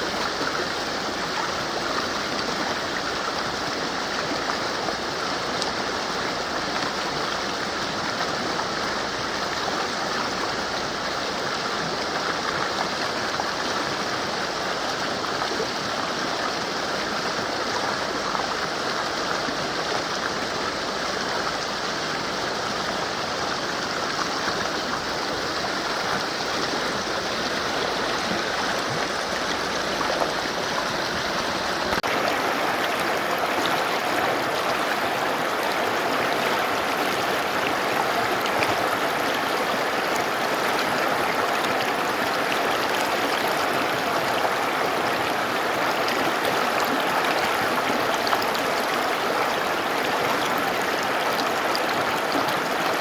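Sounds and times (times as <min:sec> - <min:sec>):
river rushing over rocks: 0:23.0 - 0:53.0.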